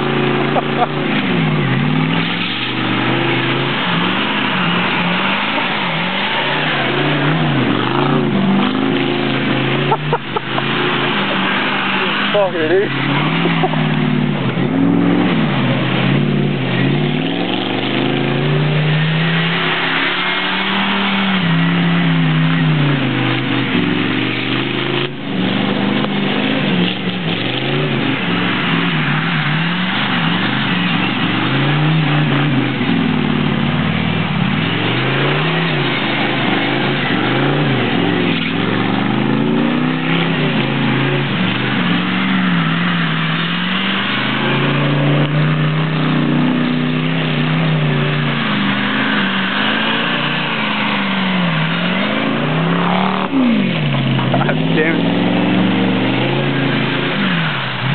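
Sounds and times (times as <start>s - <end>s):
truck engine revving: 0.0s - 57.9s.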